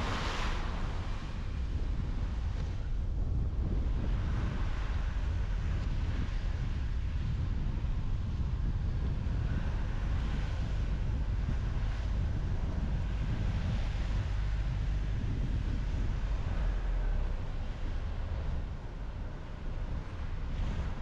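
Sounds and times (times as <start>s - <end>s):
car road noise: 0.0s - 21.0s.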